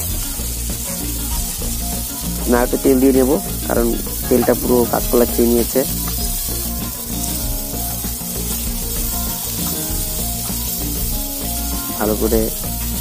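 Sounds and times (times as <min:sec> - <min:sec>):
oil sizzling in a wok: 0:00.0 - 0:13.0.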